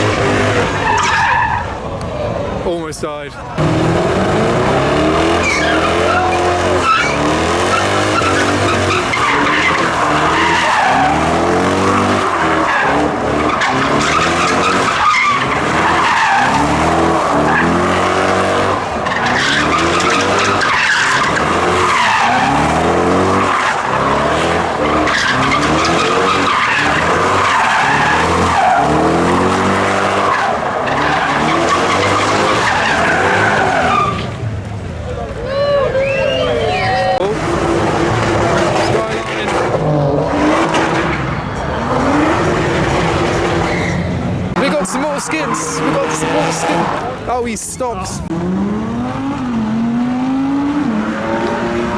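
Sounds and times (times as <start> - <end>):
car engine revving: 0.0 - 2.6, 3.3 - 35.4, 36.0 - 51.9
tyres squealing: 5.0 - 34.3, 43.5 - 48.3.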